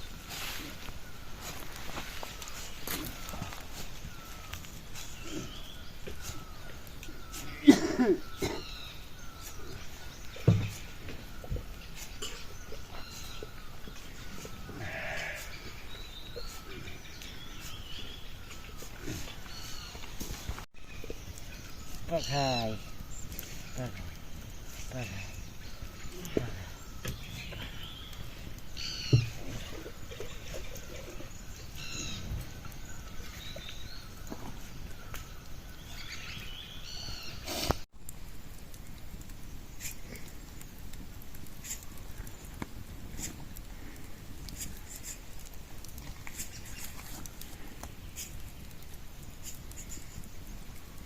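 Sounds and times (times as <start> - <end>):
rustling and shuffling outdoors: 0.0 - 51.0
sheep bleating: 14.7 - 15.7.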